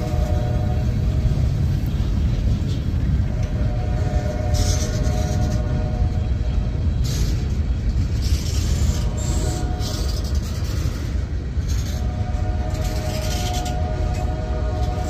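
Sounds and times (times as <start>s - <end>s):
freight train cars rumbling past: 0.0s - 15.0s
wheel-on-rail hissing: 3.6s - 6.2s, 6.8s - 15.0s.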